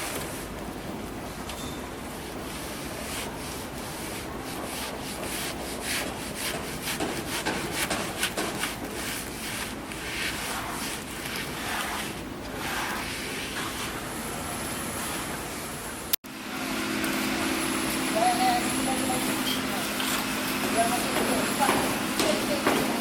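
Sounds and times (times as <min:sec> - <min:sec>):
trowel scraping plaster on wall: 0:02.7 - 0:14.1.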